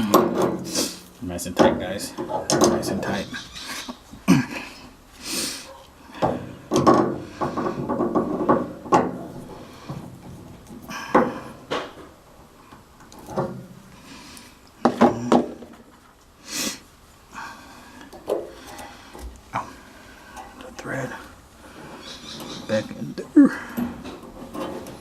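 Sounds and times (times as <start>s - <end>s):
metal parts knocking and rattling: 0.0s - 0.8s, 1.5s - 3.3s, 6.2s - 13.8s, 23.6s - 25.0s.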